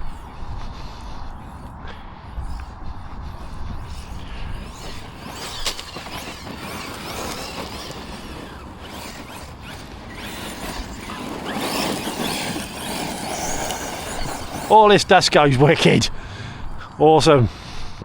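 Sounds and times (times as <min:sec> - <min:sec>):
electric motor whining: 0:00.0 - 0:17.9
tyres rushing on gravel: 0:03.8 - 0:17.6.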